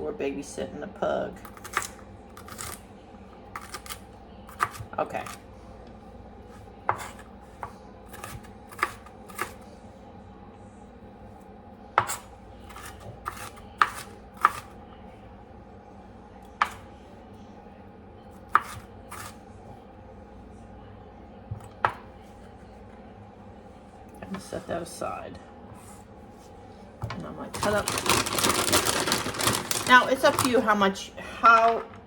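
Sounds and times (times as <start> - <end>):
knife chopping on cutting board: 12.0 - 14.7, 16.6 - 16.8.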